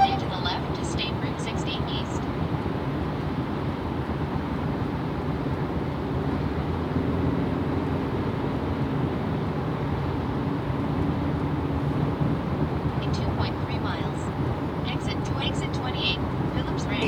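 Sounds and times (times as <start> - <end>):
tyres rumbling on road: 0.3 - 17.0
faint steady hum: 14.9 - 17.0.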